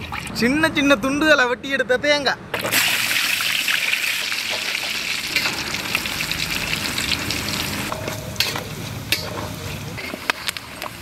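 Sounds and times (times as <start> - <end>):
coconut sizzling in oil: 2.7 - 11.0.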